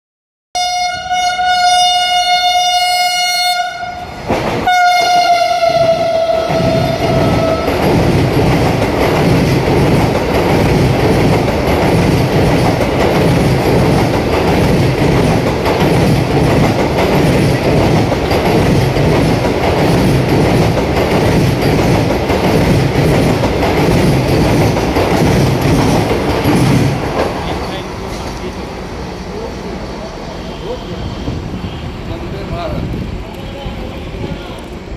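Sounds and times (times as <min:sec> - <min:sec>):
train coaches rumbling: 0:00.8 - 0:34.9
wheels clacking on rails: 0:04.1 - 0:29.5.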